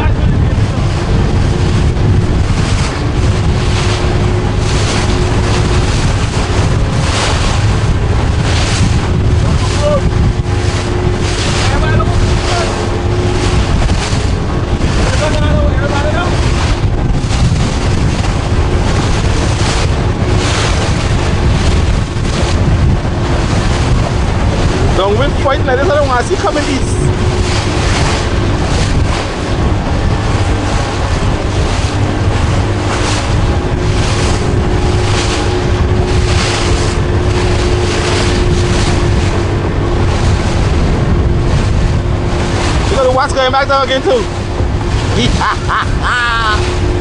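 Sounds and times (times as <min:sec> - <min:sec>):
motorboat engine running: 0:00.0 - 0:47.0
water and waves rushing: 0:00.0 - 0:47.0
wind buffeting microphone: 0:00.0 - 0:47.0.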